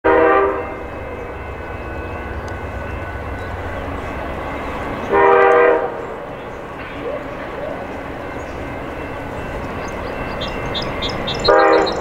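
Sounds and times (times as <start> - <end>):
train horn blast: 0.0 - 1.4, 5.0 - 6.2, 11.3 - 12.0
diesel locomotive rumble: 0.1 - 12.0.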